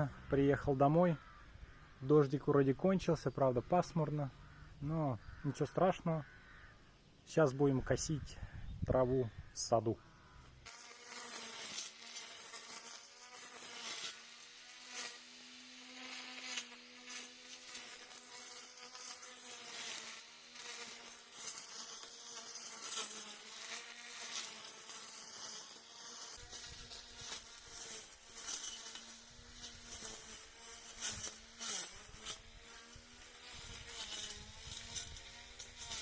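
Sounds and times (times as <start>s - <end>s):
lawn mower motor buzzing: 10.7s - 36.0s.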